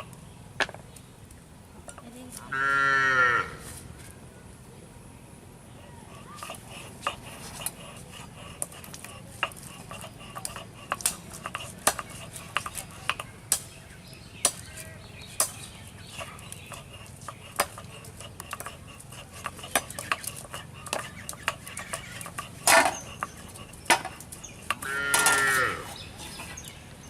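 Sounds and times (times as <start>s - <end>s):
steady low background hum: 0.0s - 27.0s.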